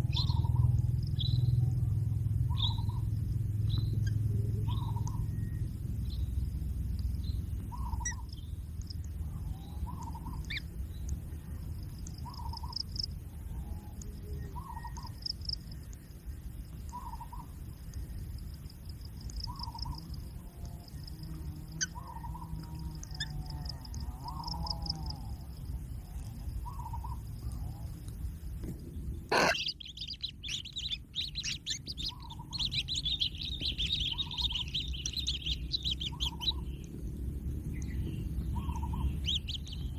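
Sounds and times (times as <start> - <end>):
dense high bird chattering: 0.0 - 6.2, 7.2 - 16.0, 16.7 - 21.0, 21.6 - 28.0, 28.8 - 39.9
high bird chirps: 0.0 - 6.4, 7.2 - 11.2, 11.8 - 13.2, 14.2 - 15.7, 19.2 - 20.2, 28.8 - 37.0, 37.6 - 39.9.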